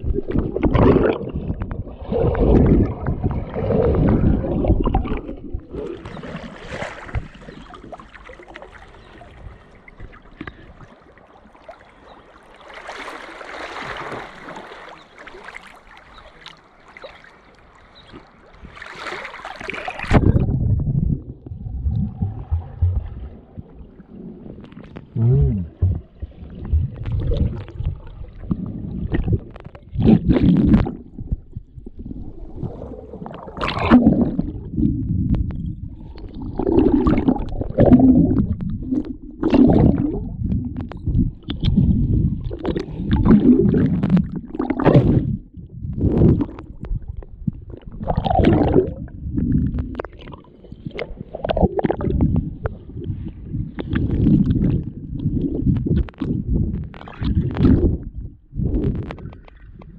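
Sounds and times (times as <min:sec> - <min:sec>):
river water sloshing: 0:02.0 - 0:20.5.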